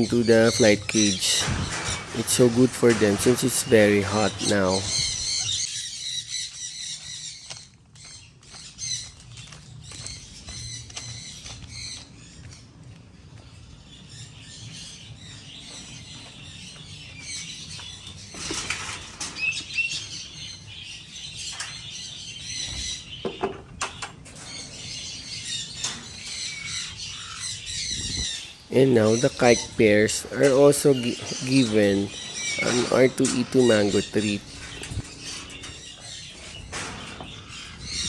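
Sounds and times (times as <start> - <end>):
clicks and rattles in wire cage: 0.6 - 5.7, 18.3 - 20.3, 22.6 - 28.2, 28.9 - 38.0.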